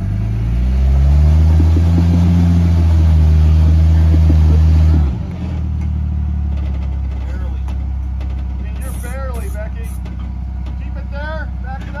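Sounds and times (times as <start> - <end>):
car engine revving: 0.0 - 6.9.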